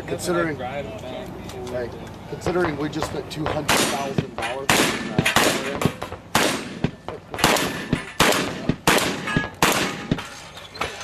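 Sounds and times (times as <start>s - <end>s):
gunshots with ringing tail: 3.7s - 10.2s.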